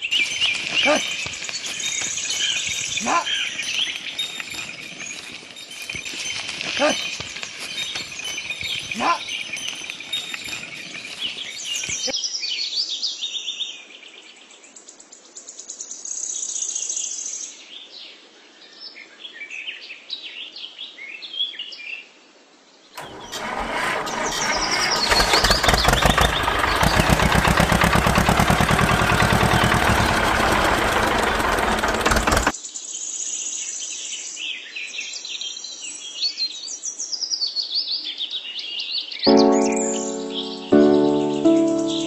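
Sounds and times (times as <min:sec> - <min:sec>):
birds chirping: 0:00.0 - 0:12.1, 0:23.2 - 0:32.5, 0:39.3 - 0:42.0
engine running with even pulsing: 0:23.0 - 0:32.5.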